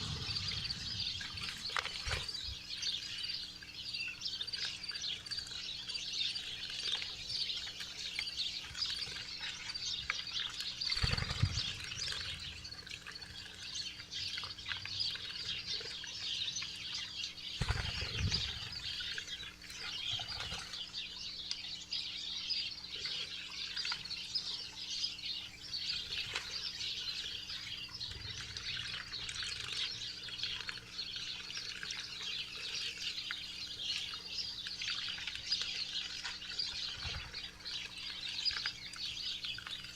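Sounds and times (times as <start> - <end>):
low wingbeat flutters: 0.0 - 2.7
small songbirds chirping: 0.0 - 39.9.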